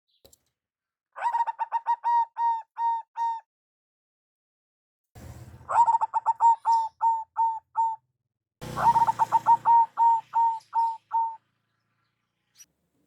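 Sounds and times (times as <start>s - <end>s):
dove cooing: 1.2s - 3.4s, 5.7s - 8.0s, 8.6s - 11.4s.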